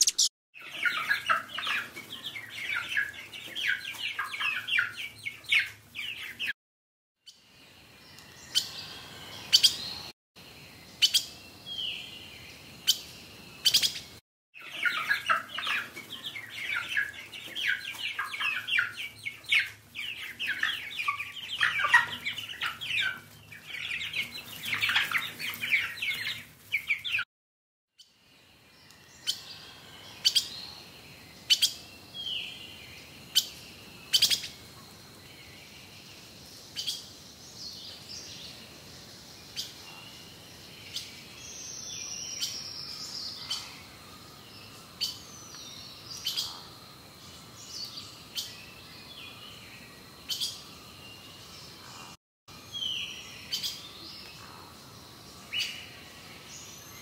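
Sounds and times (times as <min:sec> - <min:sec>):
sharp bird chirps: 0:00.0 - 0:03.1, 0:33.3 - 0:34.6
chatter of many birds: 0:00.0 - 0:06.5, 0:12.0 - 0:27.2, 0:28.6 - 0:52.2, 0:52.8 - 0:57.0.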